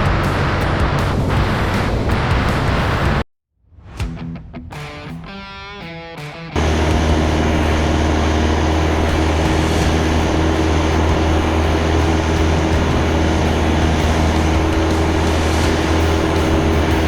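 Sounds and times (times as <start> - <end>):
light airplane engine droning: 6.6 - 17.0.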